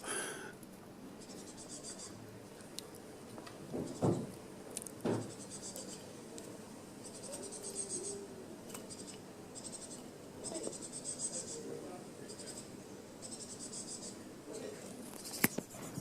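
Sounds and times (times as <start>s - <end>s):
insect chirping: 1.2s - 2.2s, 8.9s - 14.2s.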